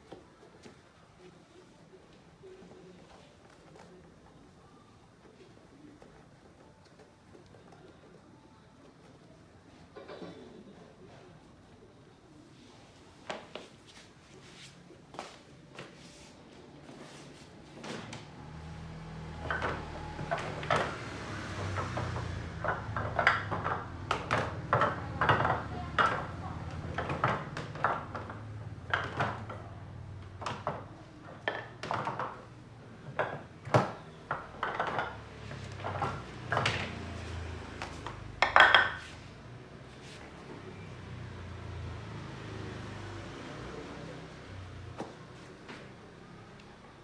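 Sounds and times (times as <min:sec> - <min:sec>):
hand tools clicking and knocking: 0:19.4 - 0:29.6.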